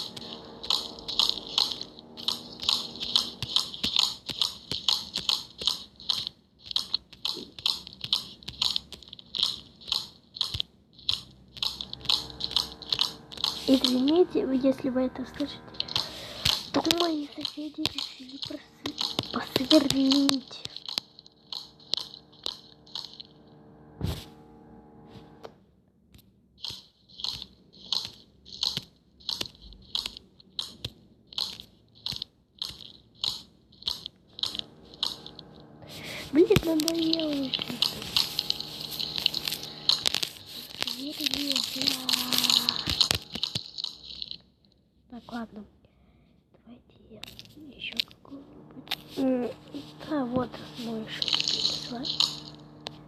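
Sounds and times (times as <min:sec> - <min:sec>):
crunchy slime squishing: 0:00.0 - 0:14.2, 0:26.6 - 0:44.4, 0:47.2 - 0:53.0.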